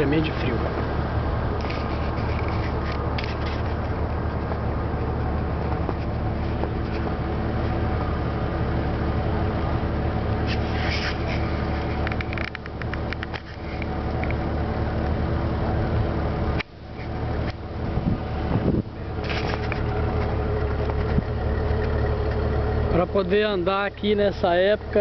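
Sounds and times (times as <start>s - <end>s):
car engine running: 0.0s - 25.0s
clicks and rustles: 1.6s - 4.6s, 10.4s - 14.5s, 19.2s - 22.5s.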